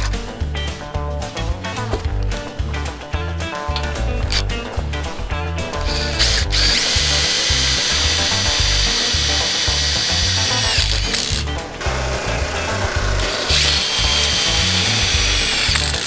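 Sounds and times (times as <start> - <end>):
impact driver whining: 5.9 - 16.0.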